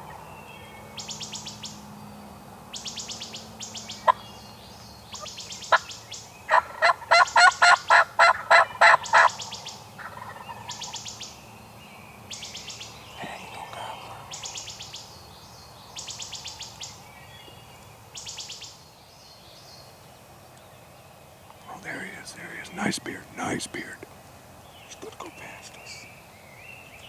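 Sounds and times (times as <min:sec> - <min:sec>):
songbird trills: 0:00.0 - 0:27.0
turkey yelps: 0:06.5 - 0:10.9.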